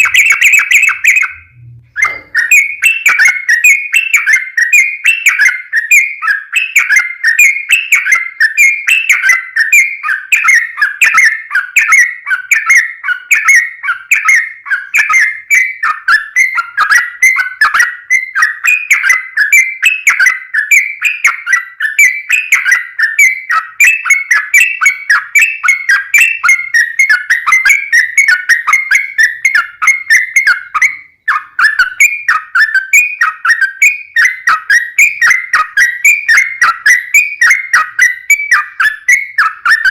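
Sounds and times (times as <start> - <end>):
bulbul singing chirping notes: 0.0 - 39.9.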